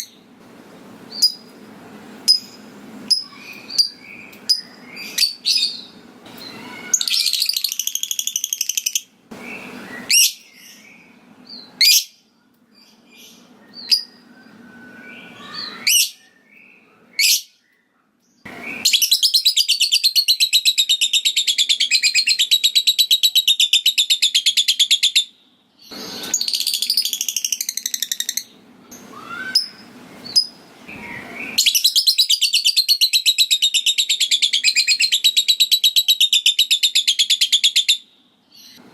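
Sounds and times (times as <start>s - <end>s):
lovebird stuttering chatter calls: 6.4s - 9.1s.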